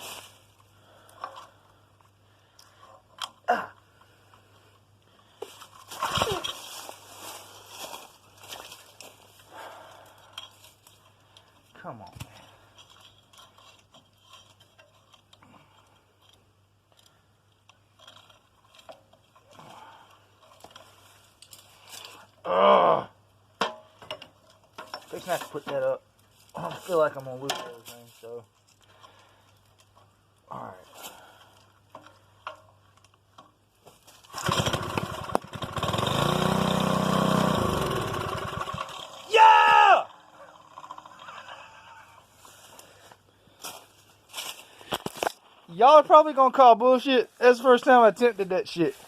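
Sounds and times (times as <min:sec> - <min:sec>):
small parts clicking and scraping: 0:00.0 - 0:04.4, 0:10.1 - 0:22.4, 0:23.6 - 0:34.4, 0:40.1 - 0:45.6
small engine starting and running: 0:34.3 - 0:39.3, 0:40.2 - 0:42.1.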